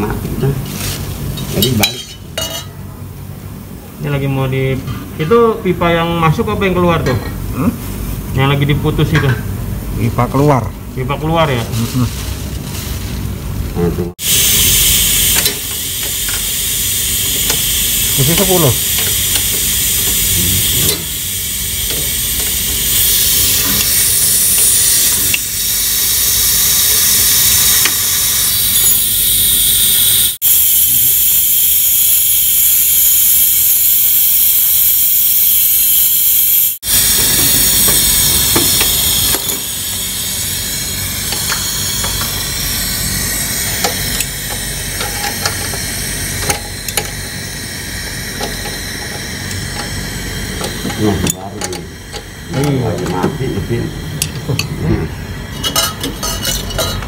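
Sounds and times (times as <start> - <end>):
pressurized gas hissing: 14.2 - 54.3.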